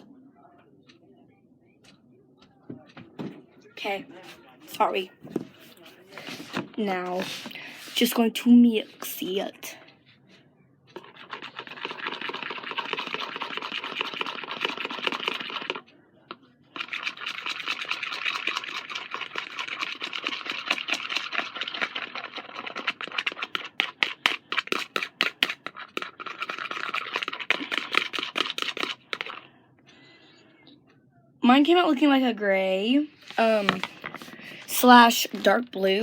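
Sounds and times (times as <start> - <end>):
utensil scraping in container: 5.6 - 8.3, 11.0 - 15.8, 16.8 - 29.4, 33.2 - 36.0.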